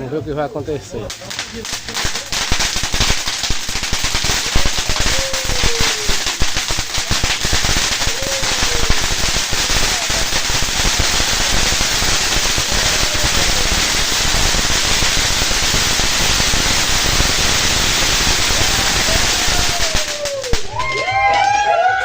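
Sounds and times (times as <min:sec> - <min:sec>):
voices: 0:00.0 - 0:03.4, 0:04.2 - 0:15.2
firework crackling and hissing: 0:00.0 - 0:21.2.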